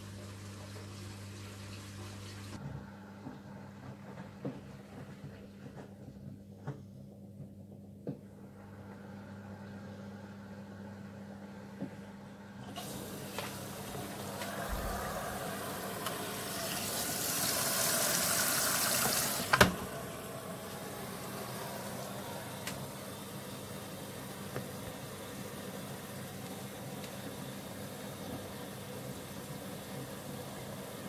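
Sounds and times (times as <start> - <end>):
washing machine water intake hiss: 12.6 - 31.0.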